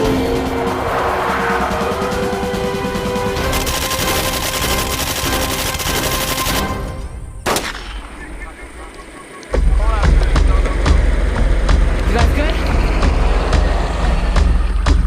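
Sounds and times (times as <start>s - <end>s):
background music: 0.0s - 15.0s
rapid automatic gunfire: 3.4s - 6.8s.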